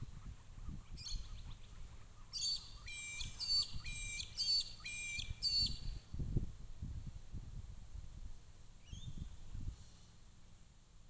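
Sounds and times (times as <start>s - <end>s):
bird calling sharp notes: 2.2s - 5.8s.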